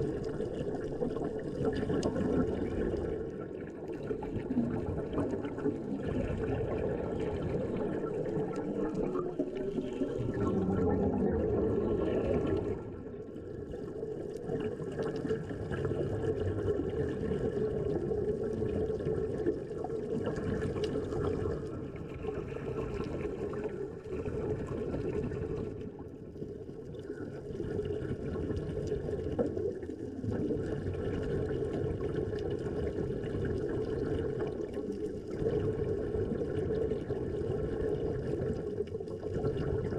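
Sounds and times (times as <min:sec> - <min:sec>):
muffled underwater water noise: 0:00.0 - 0:39.9.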